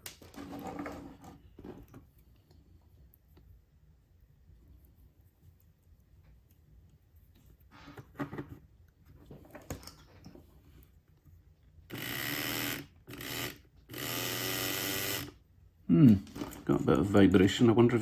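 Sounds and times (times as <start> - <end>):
small electric motor buzzing: 11.9 - 15.4.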